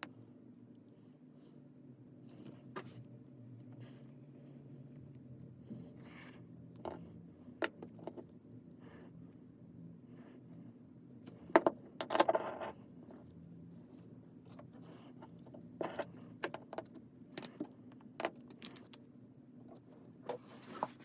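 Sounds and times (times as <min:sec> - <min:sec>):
small metal parts clinking: 0:17.3 - 0:19.0.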